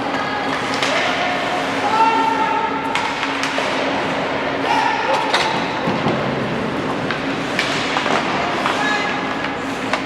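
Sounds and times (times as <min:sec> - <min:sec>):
hockey sticks and puck clacking: 0:00.0 - 0:01.8, 0:02.8 - 0:04.2, 0:05.1 - 0:10.0.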